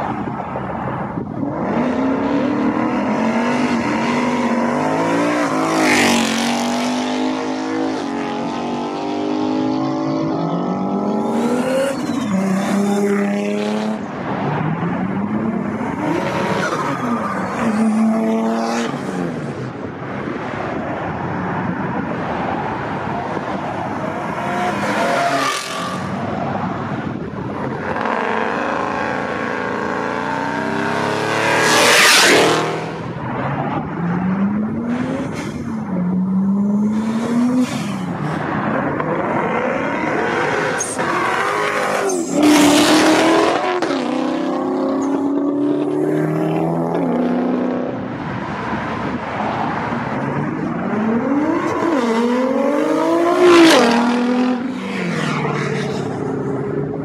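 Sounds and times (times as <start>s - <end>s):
sports car engines revving: 0.0s - 57.0s.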